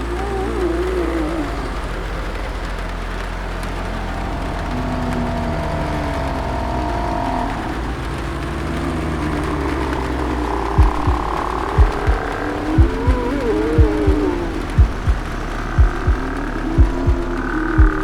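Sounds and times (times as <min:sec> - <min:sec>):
deep rumble: 0:00.0 - 0:18.0
faint drawn-out moaning tones: 0:00.0 - 0:18.0
rain-like hiss: 0:00.0 - 0:18.0.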